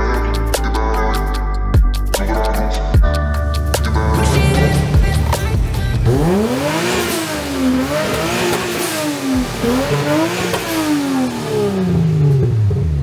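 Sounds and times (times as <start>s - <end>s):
car engine revving: 3.4s - 13.0s.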